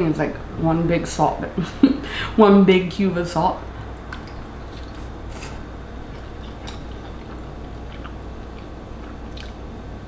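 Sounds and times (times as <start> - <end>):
low steady hum: 0.0 - 10.0
person chewing noodles: 4.2 - 9.7
wet mouth clicks: 6.5 - 9.6.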